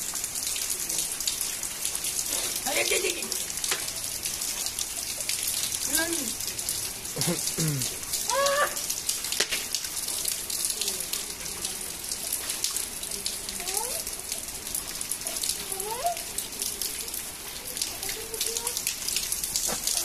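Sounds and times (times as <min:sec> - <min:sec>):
raindrop impacts: 0:01.8 - 0:14.0, 0:17.6 - 0:20.0
heavy rain hiss: 0:02.1 - 0:03.9, 0:05.9 - 0:10.1.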